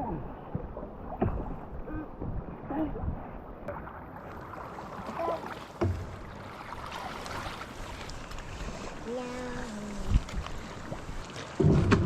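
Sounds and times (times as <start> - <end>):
water swishing and dripping: 0.0 - 12.0
paddle knocking on canoe: 5.0 - 8.2, 10.1 - 12.0.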